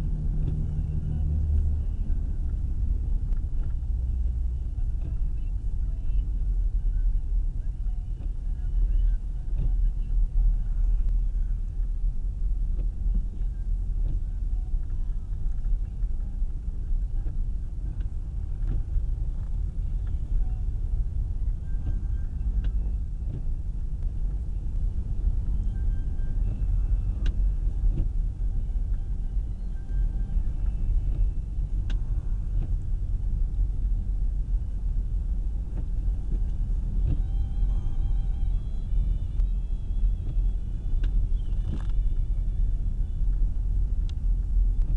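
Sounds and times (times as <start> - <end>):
car engine and tyres rumbling: 0.0 - 44.9
faint sharp clicks: 38.7 - 44.9.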